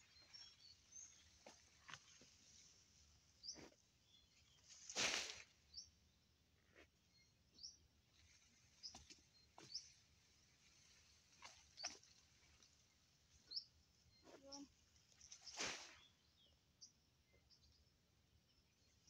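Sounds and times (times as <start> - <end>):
faint bird chirps: 0.0 - 19.0
grass rustling and snapping: 4.6 - 5.6.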